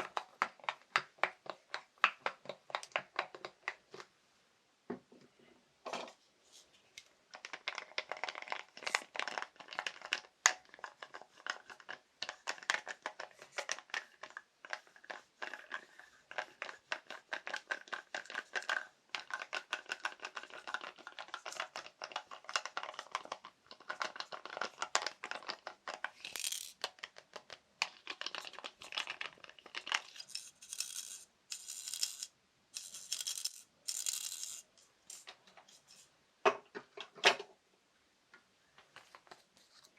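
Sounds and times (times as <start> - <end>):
tapping on small household objects: 7.4 - 35.3.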